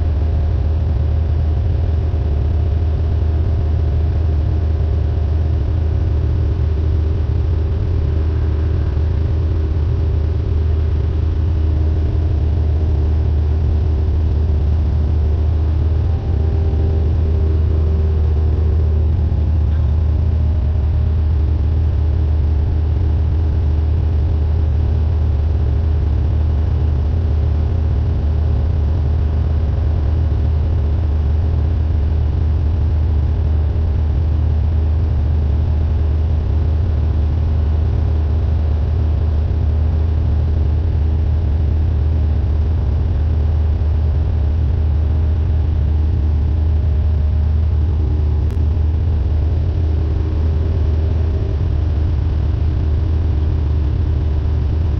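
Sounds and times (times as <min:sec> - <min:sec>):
propeller plane engine drone: 0:00.0 - 0:54.9.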